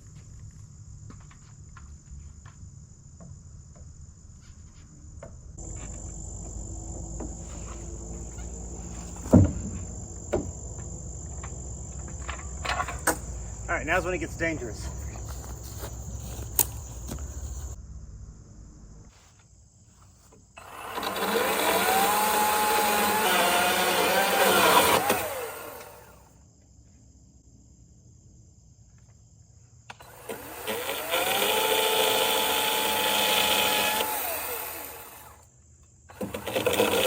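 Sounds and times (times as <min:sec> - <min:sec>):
crickets chirping: 0:00.5 - 0:22.6, 0:23.3 - 0:31.0
power tool motor whine: 0:05.6 - 0:17.8, 0:20.6 - 0:26.2, 0:29.9 - 0:35.4, 0:36.1 - 0:37.0.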